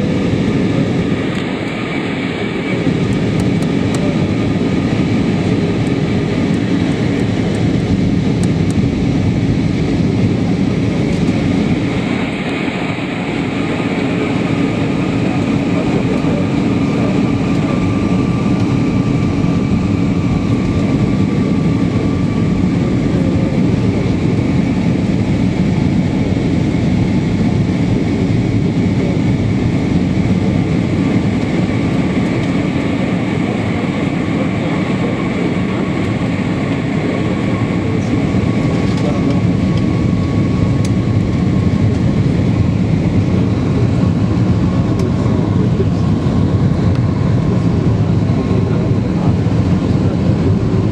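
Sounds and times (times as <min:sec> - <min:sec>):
airliner cabin drone: 0:00.0 - 0:50.9.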